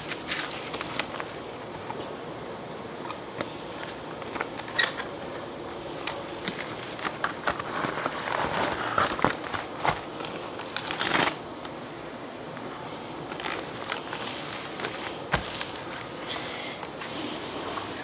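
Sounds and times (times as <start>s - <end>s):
packaging crinkling and rustling: 0.0s - 16.5s.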